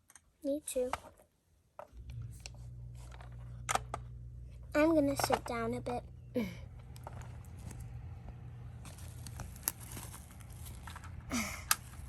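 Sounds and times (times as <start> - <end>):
plastic toys rustling: 3.0 - 4.0, 5.0 - 5.9, 6.8 - 7.9, 8.8 - 12.0.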